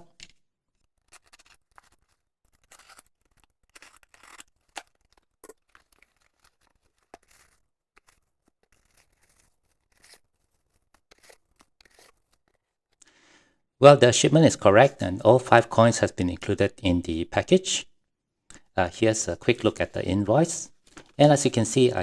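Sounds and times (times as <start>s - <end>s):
package being opened: 0.9s - 12.7s.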